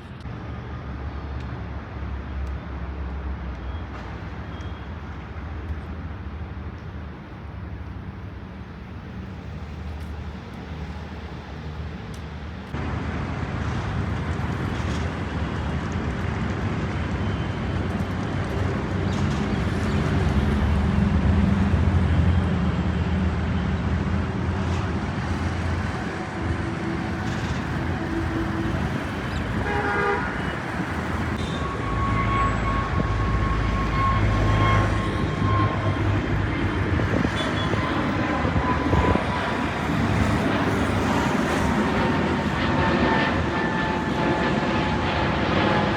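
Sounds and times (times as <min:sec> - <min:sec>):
jet airliner engine roar: 0:00.0 - 0:45.9
road traffic: 0:00.0 - 0:45.9
car horn toot: 0:29.6 - 0:30.6.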